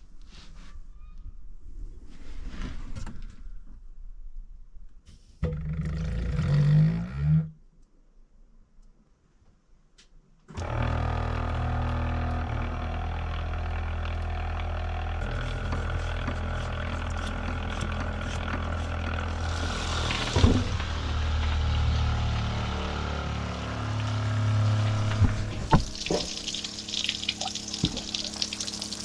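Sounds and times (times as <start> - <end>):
electric power tool whining: 10.5 - 26.8.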